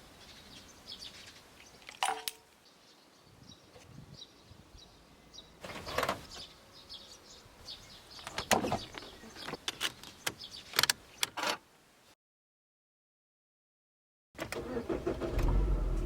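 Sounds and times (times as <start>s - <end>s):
birds chirping faintly: 0.0s - 11.4s.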